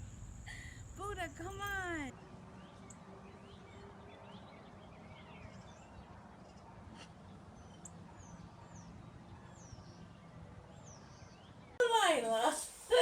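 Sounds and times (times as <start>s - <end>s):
low steady hum: 0.0s - 2.2s.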